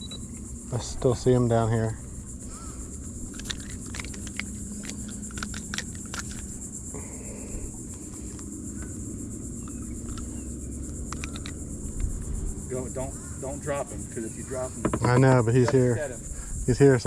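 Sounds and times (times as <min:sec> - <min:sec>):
high-pitched insect chorus: 0:00.0 - 0:17.0
small clicks and knocks: 0:10.9 - 0:12.1.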